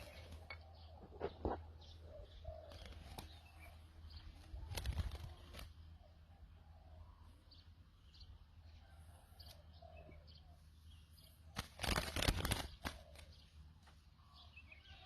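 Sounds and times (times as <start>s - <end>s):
dove cooing: 0.0s - 7.3s, 11.9s - 13.4s
small birds chirping: 0.0s - 15.0s.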